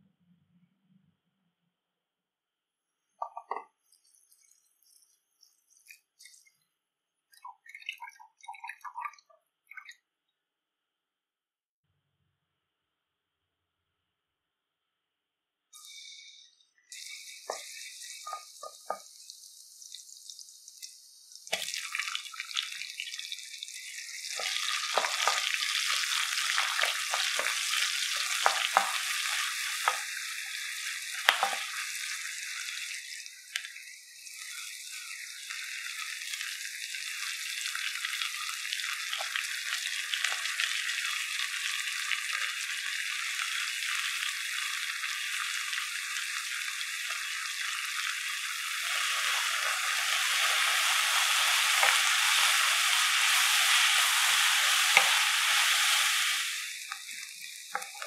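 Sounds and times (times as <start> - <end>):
onions sizzling in hot oil: 15.8 - 58.0.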